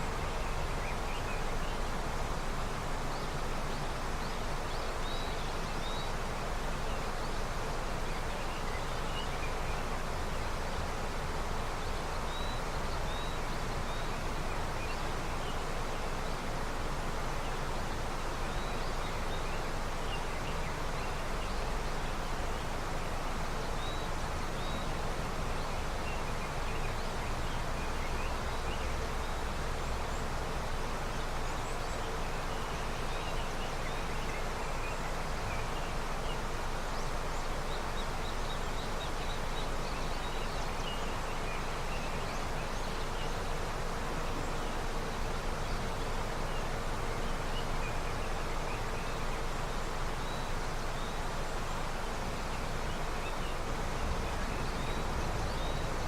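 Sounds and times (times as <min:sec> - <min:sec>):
river flowing: 0:00.0 - 0:56.0.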